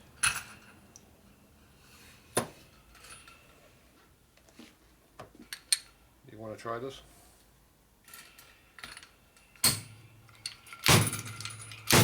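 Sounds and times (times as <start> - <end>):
metal tools clinking: 8.0 - 12.0.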